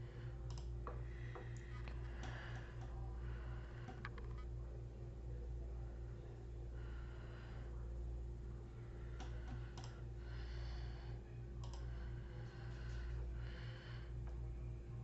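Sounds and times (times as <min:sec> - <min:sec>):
soft breaths: 0:00.0 - 0:04.7, 0:05.3 - 0:15.0
low electrical hum: 0:00.0 - 0:15.0
computer mouse clicks: 0:00.5 - 0:01.6, 0:09.2 - 0:10.0, 0:11.6 - 0:11.9.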